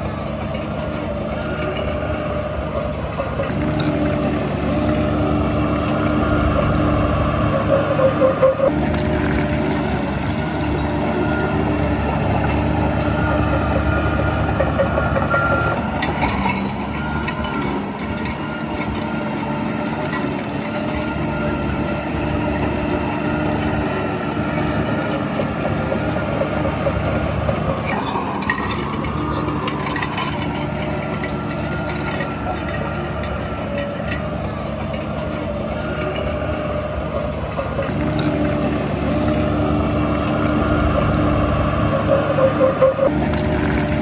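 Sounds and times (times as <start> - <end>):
diesel machinery running: 0.0 - 44.0
short clanks: 24.3 - 36.7.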